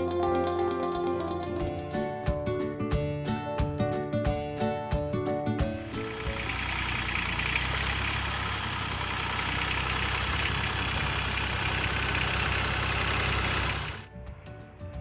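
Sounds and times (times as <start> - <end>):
tractor engine running: 5.7 - 14.1.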